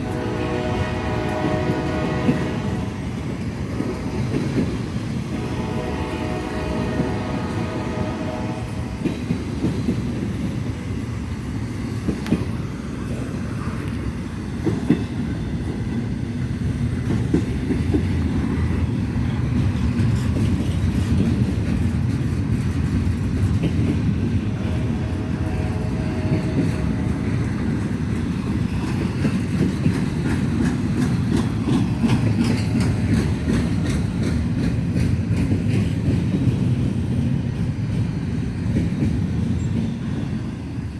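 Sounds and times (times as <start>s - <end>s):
clickety-clack of rail joints: 0.0s - 40.9s
train wheels rumbling on rails: 0.0s - 40.9s.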